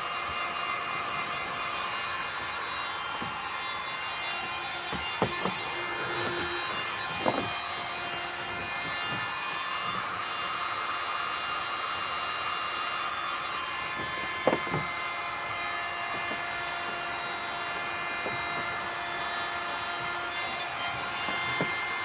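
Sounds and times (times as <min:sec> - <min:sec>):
heat gun running: 0:00.0 - 0:22.0.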